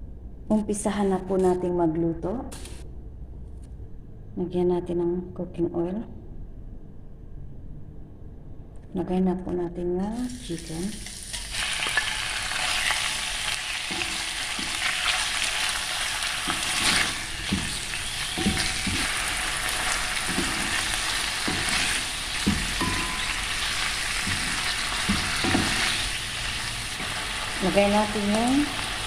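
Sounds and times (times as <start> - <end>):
chicken frying in oil: 10.5 - 29.0
spatula knocking against pan: 18.4 - 19.1, 22.4 - 23.6, 24.2 - 25.9.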